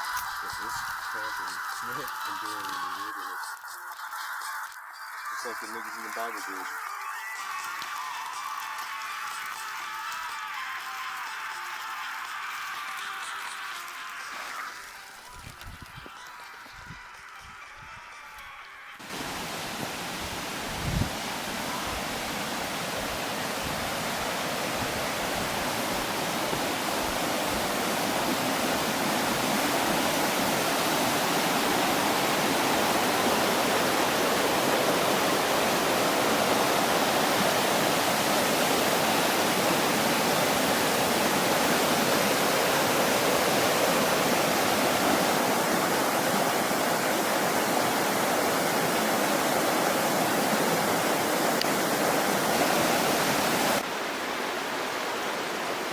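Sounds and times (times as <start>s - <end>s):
stream water rushing: 0.0s - 3.4s, 19.0s - 55.9s.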